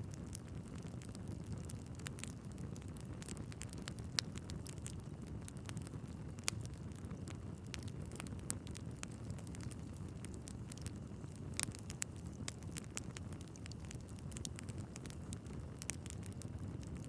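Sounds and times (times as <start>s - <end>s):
fire flames rumbling: 0.0s - 17.0s
logs crackling and popping: 0.0s - 17.0s.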